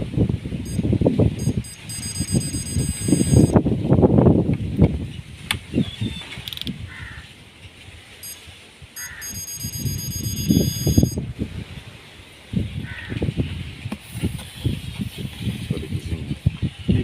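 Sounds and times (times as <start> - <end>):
high-pitched electronic beeps: 0.6 - 3.6, 8.2 - 8.4, 9.0 - 11.2.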